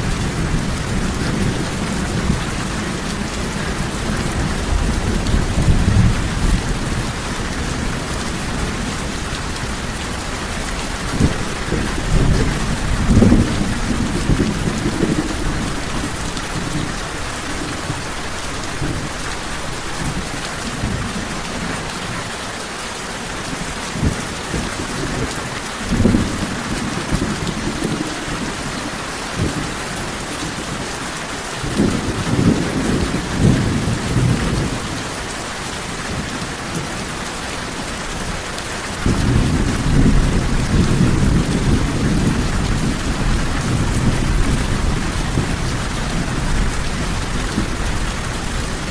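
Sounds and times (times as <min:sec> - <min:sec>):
thunder rolling: 0:00.0 - 0:19.2, 0:39.0 - 0:48.9
heavy rain falling: 0:00.0 - 0:48.9.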